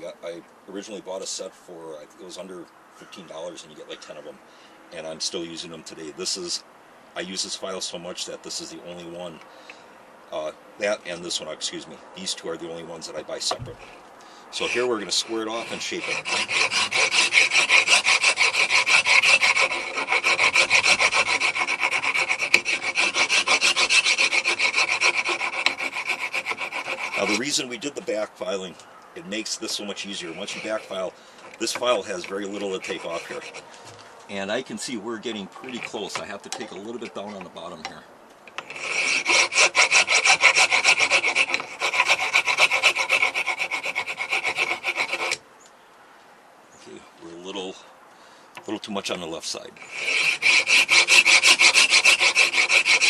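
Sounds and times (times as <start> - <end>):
file rasping on stone: 13.7 - 27.6, 29.7 - 33.7, 38.6 - 45.4, 49.8 - 53.0.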